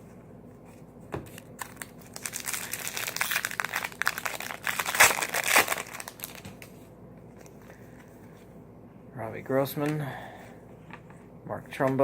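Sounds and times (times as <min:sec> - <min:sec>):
foil wrapper crinkling: 0:01.5 - 0:06.7.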